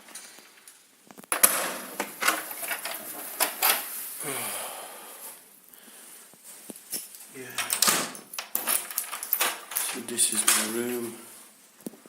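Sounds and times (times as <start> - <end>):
door lock and handle clicking: 7.6 - 10.7.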